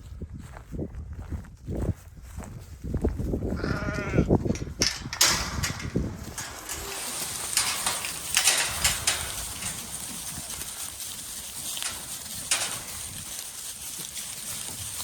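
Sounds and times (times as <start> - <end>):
sheep bleating: 3.6 - 4.4
rustling with clicks: 3.9 - 15.0.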